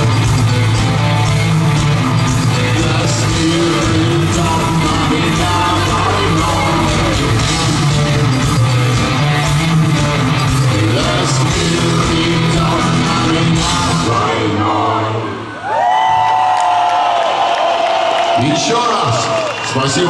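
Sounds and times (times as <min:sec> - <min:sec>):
rock band playing: 0:00.0 - 0:14.6.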